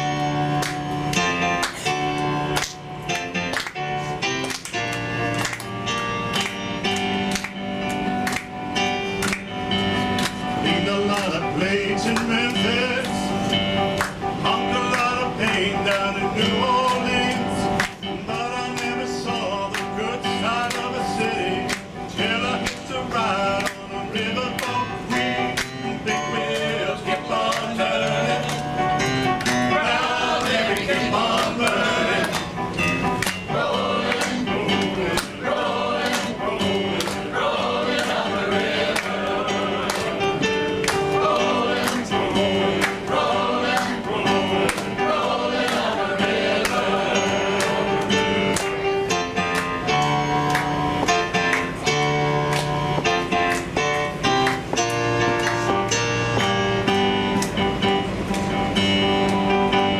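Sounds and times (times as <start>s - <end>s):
male chorus singing: 10.5s - 13.5s, 14.3s - 48.6s.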